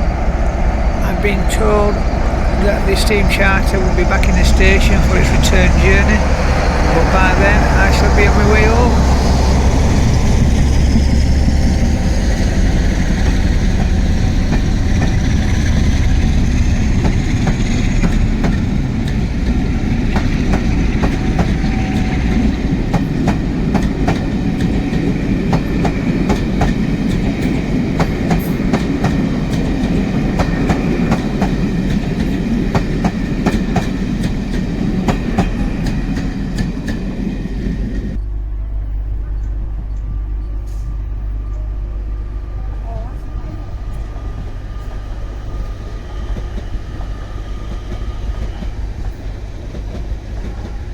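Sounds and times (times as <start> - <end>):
wheels clicking over rail joints: 0.0 - 38.2
diesel locomotive engine rumble: 0.0 - 50.9.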